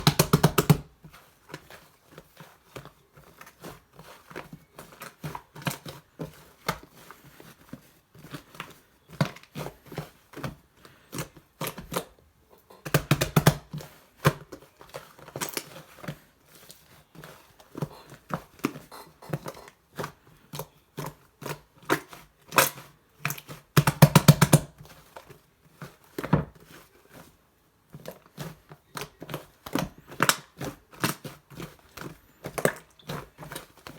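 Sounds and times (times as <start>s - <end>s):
slime squelching by hand: 25.8s - 33.9s.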